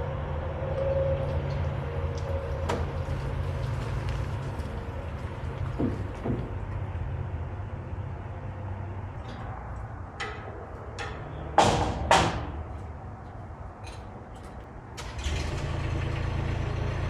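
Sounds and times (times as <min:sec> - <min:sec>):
loud bangs: 0:10.3 - 0:12.8.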